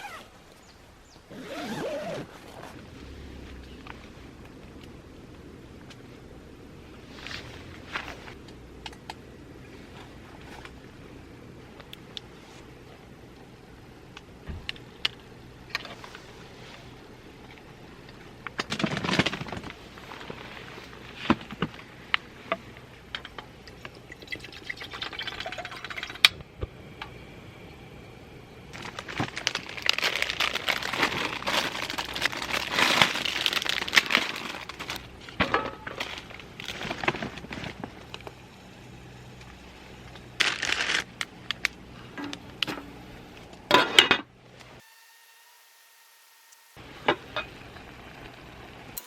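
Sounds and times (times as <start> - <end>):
packaging rustling and crinkling: 28.7 - 35.1, 40.4 - 41.7.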